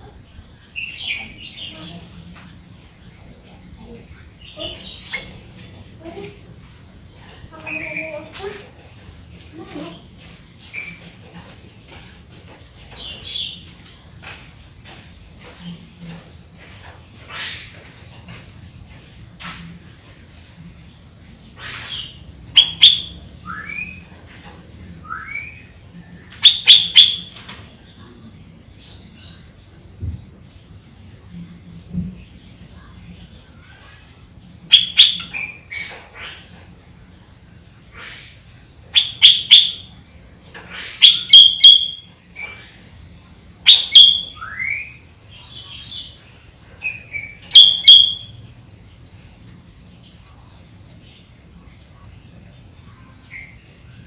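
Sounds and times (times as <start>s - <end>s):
bulbul calling: 21.6s - 24.0s, 26.4s - 27.4s, 34.7s - 36.4s, 39.0s - 39.9s, 40.7s - 42.6s, 43.6s - 45.0s, 46.9s - 48.4s
bird singing whistled phrases: 46.9s - 48.4s.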